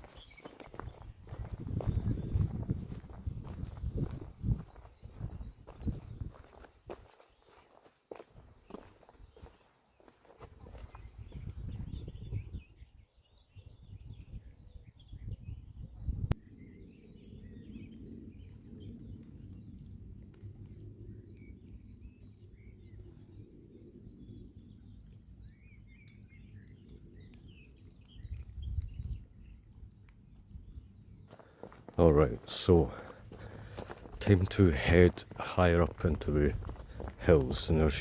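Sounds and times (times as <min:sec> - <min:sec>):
small birds chirping and singing: 0:00.0 - 0:38.0
steady low rumble: 0:00.7 - 0:06.3, 0:32.1 - 0:38.0.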